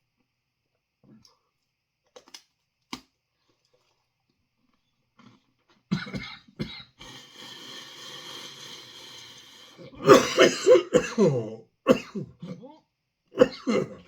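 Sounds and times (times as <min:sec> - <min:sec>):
strained breathing: 0:07.0 - 0:10.0
man coughing: 0:10.0 - 0:12.6, 0:13.4 - 0:14.0.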